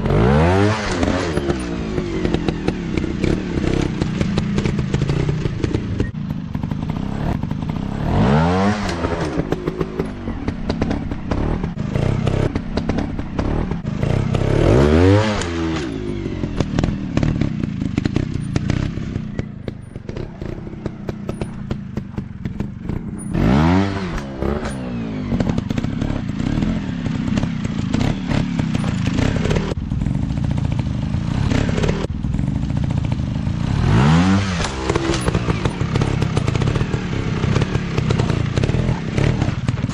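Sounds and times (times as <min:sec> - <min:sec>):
dirt bike engines revving: 0:00.0 - 0:39.9
rattling clatter: 0:15.3 - 0:33.4, 0:34.6 - 0:39.9.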